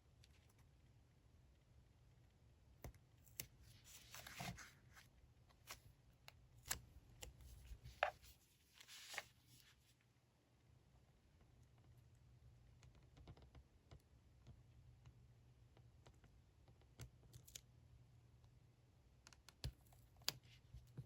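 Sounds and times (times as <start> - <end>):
paper rustling: 3.6 - 5.8, 7.4 - 9.8
small clicks and taps: 12.7 - 17.6.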